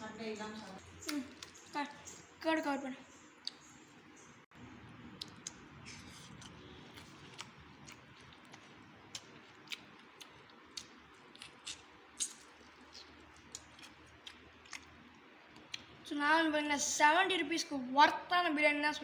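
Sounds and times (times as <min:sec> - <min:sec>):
person chewing food: 0:00.8 - 0:01.8, 0:04.9 - 0:16.0
wet mouth clicks and smacks: 0:03.4 - 0:03.8, 0:07.3 - 0:14.9.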